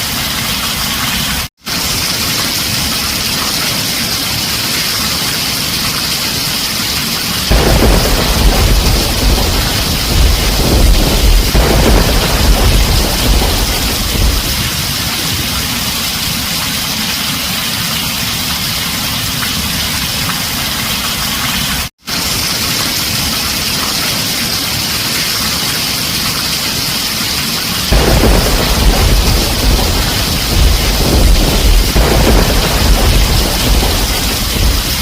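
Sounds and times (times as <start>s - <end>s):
heavy rain on a tin roof: 0.0s - 35.0s
low rumble of thunder: 7.5s - 16.2s, 27.9s - 35.0s.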